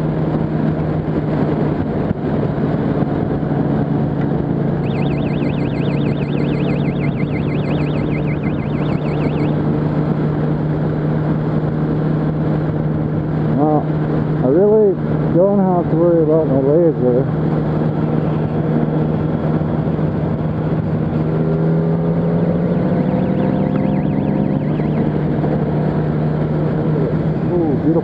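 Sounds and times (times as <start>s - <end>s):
motorcycle engine cruising: 0.0s - 28.0s
road and wind noise: 0.0s - 28.0s
warbling electronic tone: 4.8s - 9.6s, 22.4s - 25.4s.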